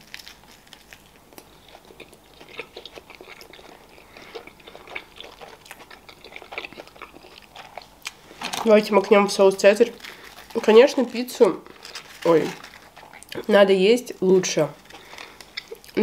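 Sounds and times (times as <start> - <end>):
person chewing crunchy food: 0.0 - 8.5, 9.8 - 13.6, 14.8 - 16.0.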